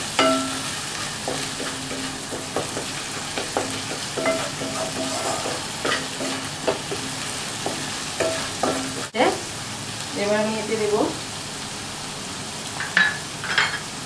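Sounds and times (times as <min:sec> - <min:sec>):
paste sizzling in a wok: 0:00.0 - 0:14.0
spatula squeaking: 0:00.2 - 0:09.0
wooden spatula scraping a pan: 0:00.6 - 0:09.1.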